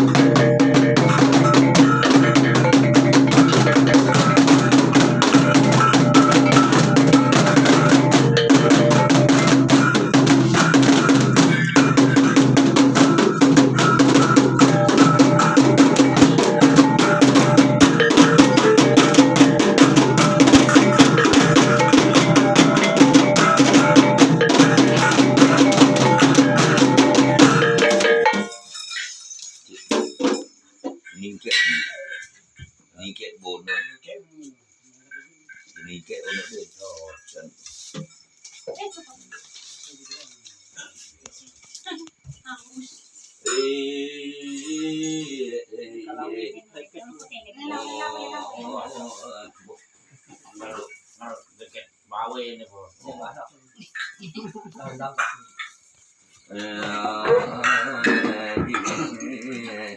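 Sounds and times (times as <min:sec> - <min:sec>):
fast dense drumming: 0:00.0 - 0:28.4
steady ringing tones: 0:00.0 - 0:30.8.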